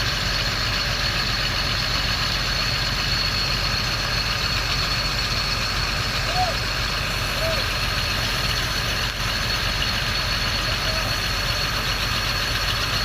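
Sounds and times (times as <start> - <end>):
heavy diesel engine idling: 0.0 - 13.0.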